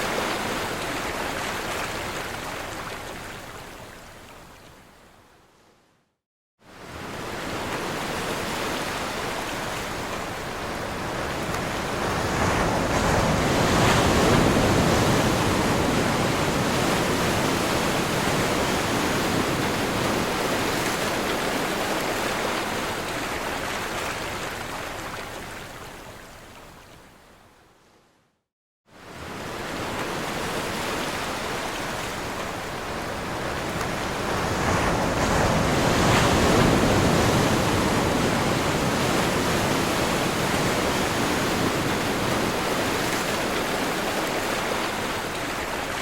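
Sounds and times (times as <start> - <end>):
ocean surf breaking: 11.0 - 22.5, 29.2 - 45.9.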